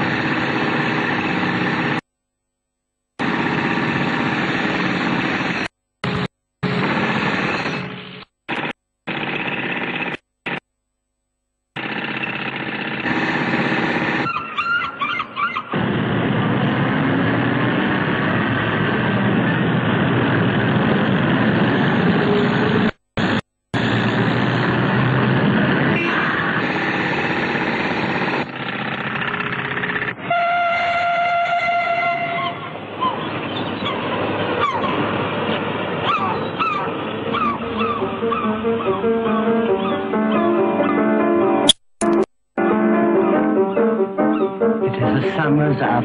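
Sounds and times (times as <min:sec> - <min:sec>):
train rumbling on rails: 0:13.0 - 0:23.0, 0:23.8 - 0:40.0
train whistle: 0:30.2 - 0:32.6.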